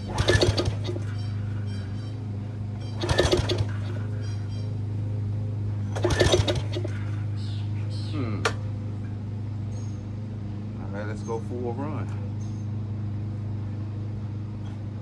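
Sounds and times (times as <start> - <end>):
engine pull-start attempts: 0.0 - 4.7, 5.8 - 9.1.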